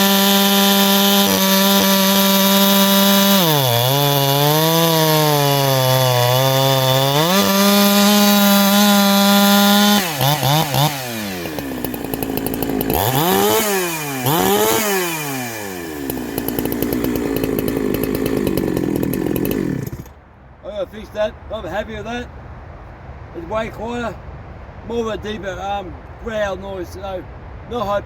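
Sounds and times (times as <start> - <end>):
chainsaw revving: 0.0 - 20.2.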